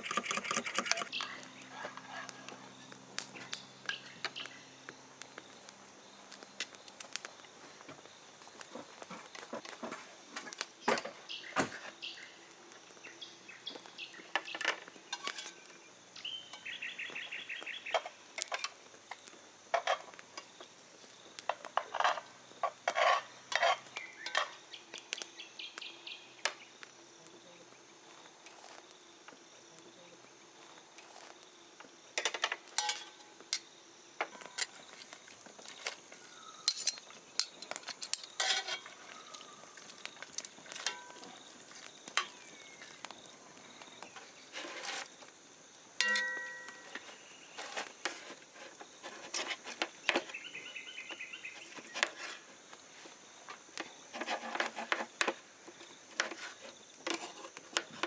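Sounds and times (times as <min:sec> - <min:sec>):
birds calling: 0:00.0 - 0:05.0, 0:36.0 - 0:37.8, 0:49.8 - 0:52.4
utensils and dishes clinking: 0:32.2 - 0:33.2, 0:36.6 - 0:39.5, 0:40.4 - 0:41.3, 0:46.0 - 0:47.1.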